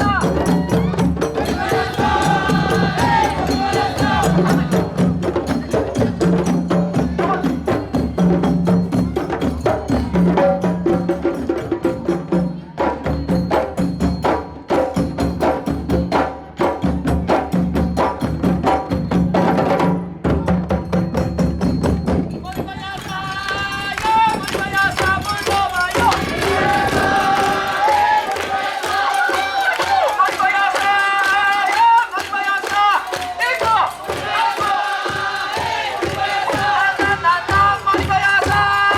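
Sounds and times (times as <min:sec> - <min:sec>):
voices singing: 0:00.0 - 0:08.0, 0:22.6 - 0:38.9
percussion band drumming: 0:00.0 - 0:38.9.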